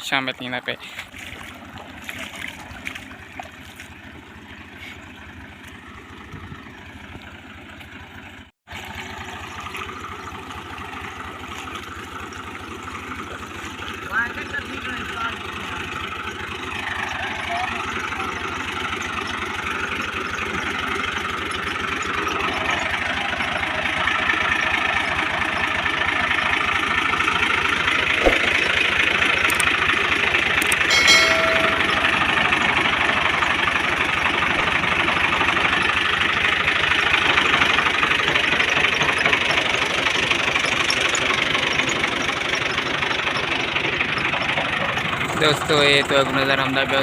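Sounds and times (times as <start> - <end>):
engine running: 0.0 - 47.0
brief pitched tone: 30.8 - 32.8.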